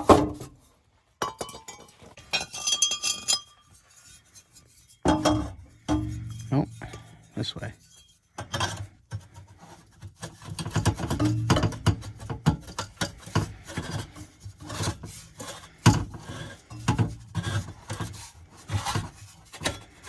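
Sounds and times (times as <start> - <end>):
metal pipe scraping: 1.4 - 20.0
metal pipe knocks: 5.1 - 7.2, 10.8 - 12.7.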